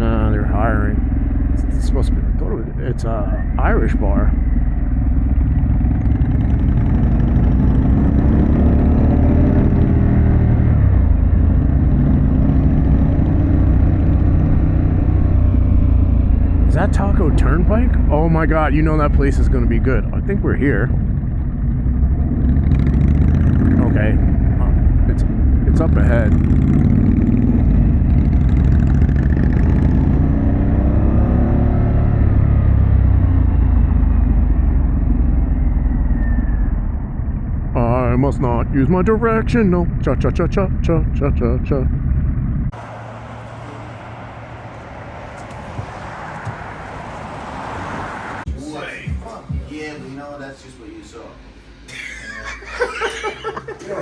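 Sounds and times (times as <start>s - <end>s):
motorcycle engine under power: 0.0s - 43.0s
heavy low rumble: 0.0s - 47.7s.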